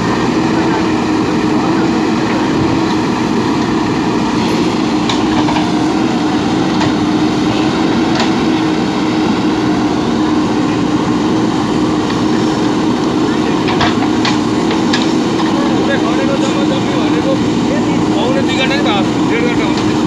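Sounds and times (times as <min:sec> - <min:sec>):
diesel engine humming: 0:00.0 - 0:20.0.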